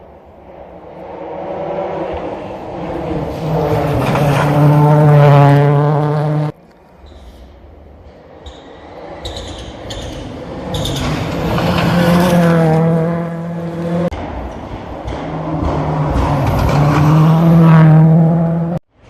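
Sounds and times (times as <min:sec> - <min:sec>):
rally car engine revving hard: 0:02.0 - 0:06.6, 0:10.3 - 0:14.1, 0:15.2 - 0:18.8.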